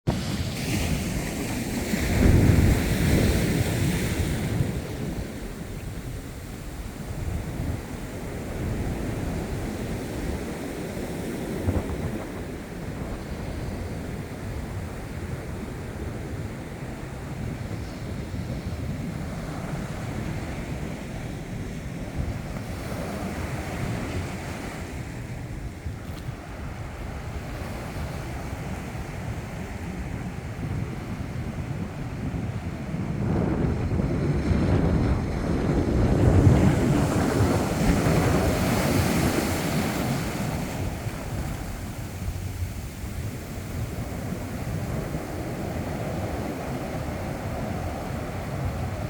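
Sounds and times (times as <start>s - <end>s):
ocean surf washing in: 0.1s - 49.0s
wind buffeting microphone: 0.1s - 49.0s.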